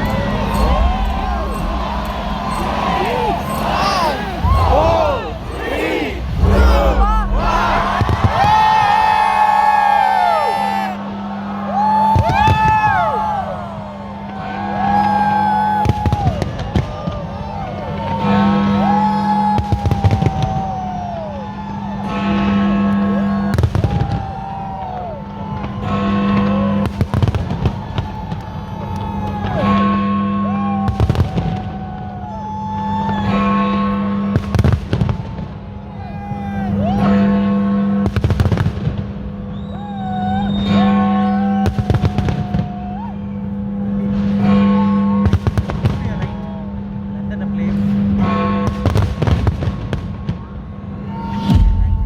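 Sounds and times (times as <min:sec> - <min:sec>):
music with low note: 0:00.0 - 0:05.5
whistling firework shells: 0:00.0 - 0:09.3, 0:19.1 - 0:21.7, 0:38.2 - 0:42.8
firework bangs: 0:00.0 - 0:10.2, 0:12.1 - 0:12.9, 0:19.5 - 0:21.0, 0:23.5 - 0:29.6, 0:30.8 - 0:31.9, 0:34.3 - 0:35.7, 0:38.0 - 0:39.6, 0:41.6 - 0:42.8, 0:45.2 - 0:46.4, 0:48.6 - 0:50.6.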